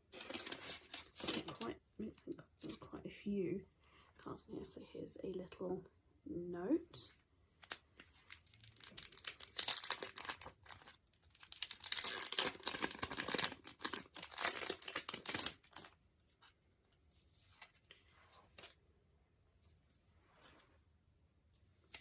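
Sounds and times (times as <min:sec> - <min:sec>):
packaging torn and crinkled: 0:07.6 - 0:16.0.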